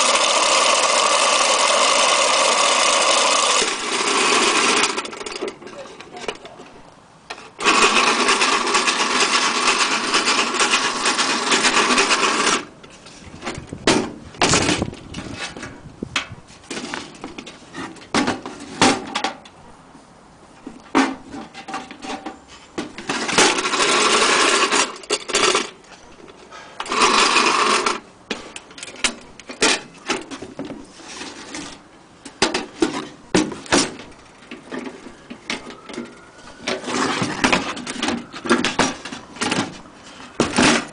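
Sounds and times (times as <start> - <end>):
small electric motor running: 0.0 - 5.0.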